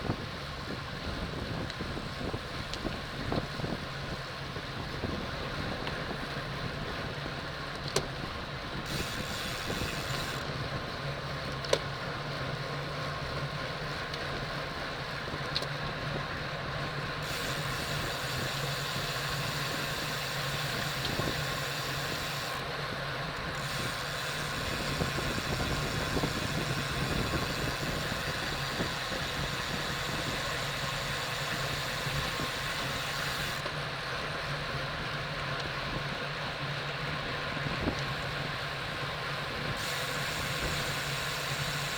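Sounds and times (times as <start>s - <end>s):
wind and road noise: 0.0s - 41.9s.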